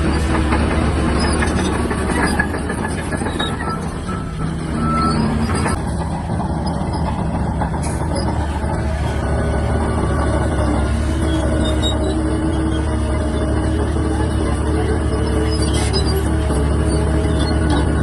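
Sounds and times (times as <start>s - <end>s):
machine clanks: 0.0s - 8.8s
bulldozer diesel engine running: 0.0s - 18.0s.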